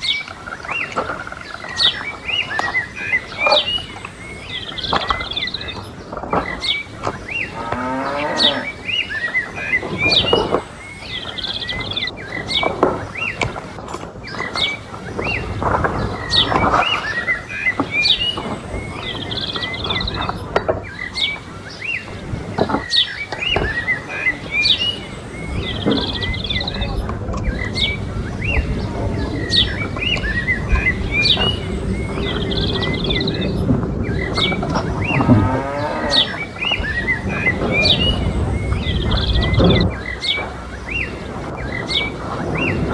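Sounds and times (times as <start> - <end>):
small birds chirping: 0.0 - 42.9
cattle mooing: 7.4 - 8.8, 35.1 - 36.4.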